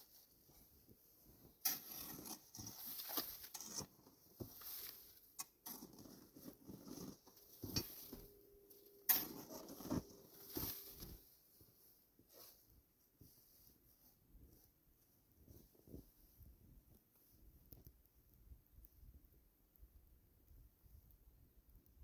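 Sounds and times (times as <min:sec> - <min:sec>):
rustling: 0:00.0 - 0:17.8
footsteps crunching through snow: 0:09.1 - 0:11.4.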